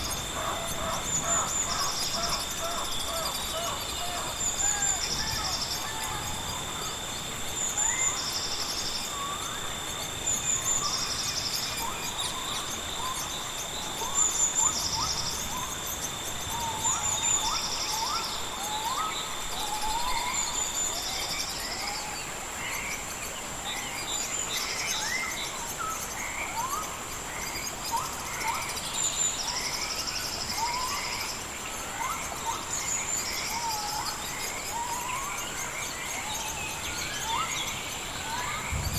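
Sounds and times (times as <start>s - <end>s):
high insect drone: 0.0s - 38.9s
pulsed insect chirp: 0.0s - 38.9s
steady insect tone: 0.0s - 38.9s
whistled bird calls: 7.7s - 22.2s.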